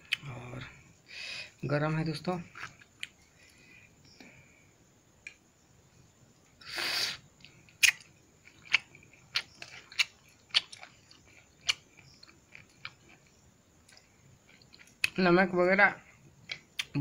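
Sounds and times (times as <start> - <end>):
breathy hiss: 0.3 - 1.6, 3.2 - 5.0, 6.6 - 7.6
wet chewing smacks and clicks: 7.4 - 15.2.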